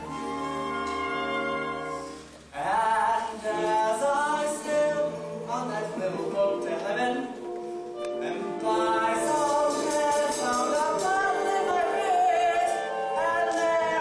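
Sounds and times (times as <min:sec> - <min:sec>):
stage cast singing a show tune: 0:08.4 - 0:14.0.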